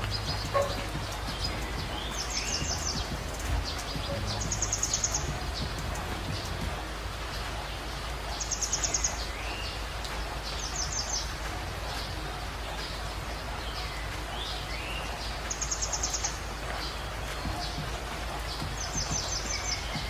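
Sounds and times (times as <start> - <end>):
steady low hum: 0.0 - 8.6
whistled bird notes: 0.0 - 12.1
birds chirping: 0.0 - 20.0.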